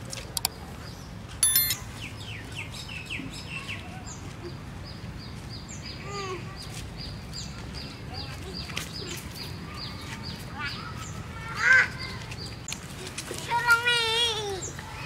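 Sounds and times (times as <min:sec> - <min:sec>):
small birds chirping: 0:00.4 - 0:12.8
sharp high-pitched squeak: 0:01.4 - 0:01.8.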